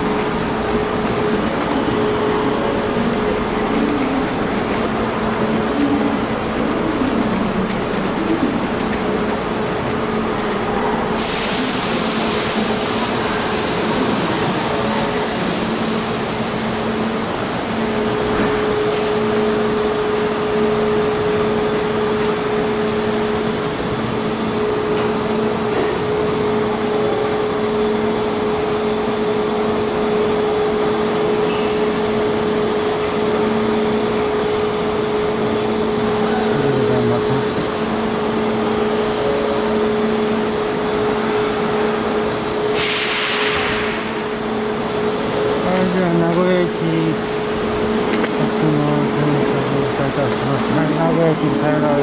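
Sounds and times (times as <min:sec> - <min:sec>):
pitched hum: 0:00.0 - 0:42.7
train equipment whirring hum: 0:00.0 - 0:52.0
air hiss: 0:11.2 - 0:14.4, 0:42.8 - 0:44.1.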